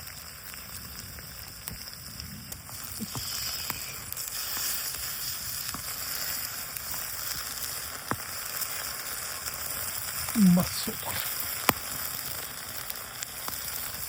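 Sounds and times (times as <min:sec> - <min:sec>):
food sizzling in a pan: 0:00.0 - 0:14.0
sharp pops: 0:10.2 - 0:13.8.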